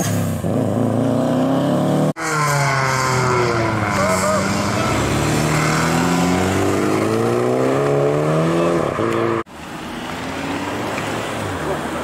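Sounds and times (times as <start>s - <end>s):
car engine accelerating: 0.4s - 9.5s.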